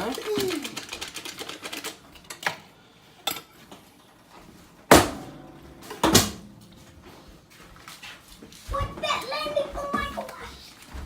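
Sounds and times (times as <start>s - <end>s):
cookware knocking and clanking: 4.9s - 6.6s.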